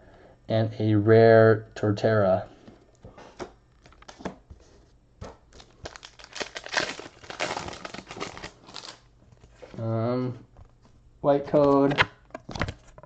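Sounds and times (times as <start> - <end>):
foil wrapper crinkling: 5.5 - 9.0.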